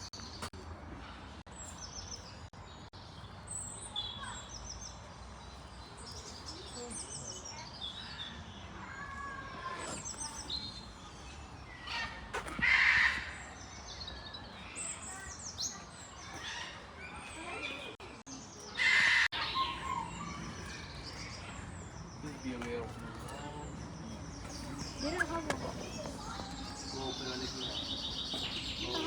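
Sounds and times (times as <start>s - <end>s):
birds chirping and calling: 9.6s - 29.0s.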